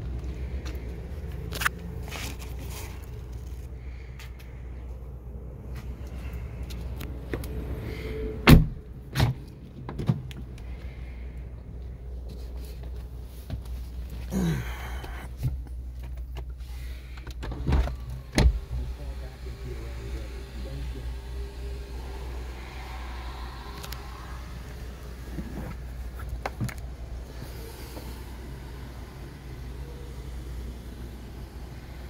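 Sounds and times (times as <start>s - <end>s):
engine idling: 10.3s - 32.0s.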